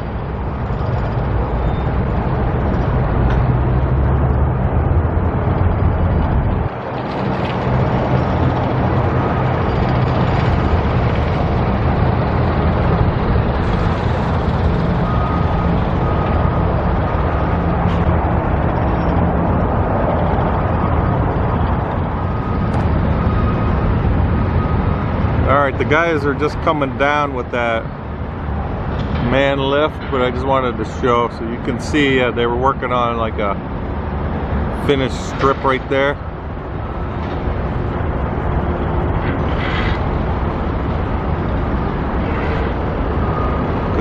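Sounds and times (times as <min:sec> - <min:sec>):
lift engine running: 0:00.0 - 0:31.6
motion alarm beeping: 0:00.4 - 0:02.1, 0:14.8 - 0:17.6, 0:22.2 - 0:24.0.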